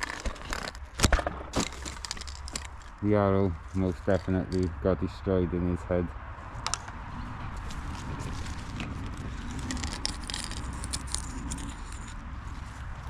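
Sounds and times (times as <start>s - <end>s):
handling clicks and rattles: 0.0s - 3.0s, 3.7s - 4.7s, 7.6s - 12.2s
steady low rumble: 1.6s - 13.0s.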